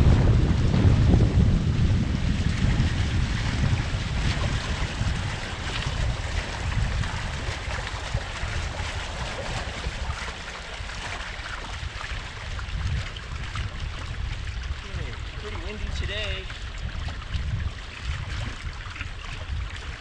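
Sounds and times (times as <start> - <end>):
water rushing along hull: 0.0 - 20.0
wind buffeting microphone: 0.0 - 20.0.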